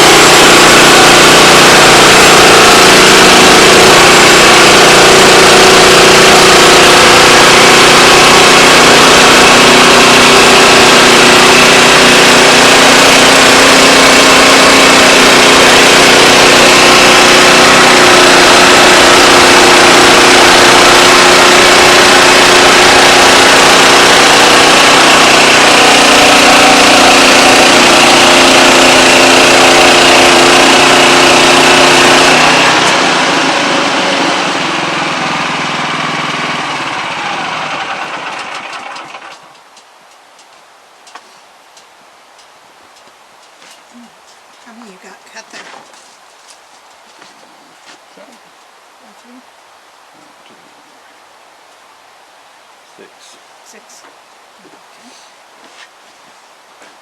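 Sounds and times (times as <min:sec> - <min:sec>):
band sawmill sawing log: 0:00.0 - 0:39.6.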